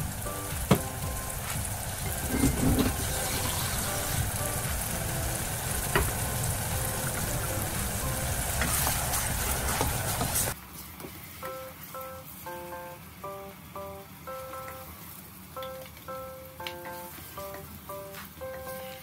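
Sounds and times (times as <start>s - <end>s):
soft background music: 0.0s - 10.6s, 11.4s - 19.0s
onions sizzling in saucepan: 0.0s - 12.0s.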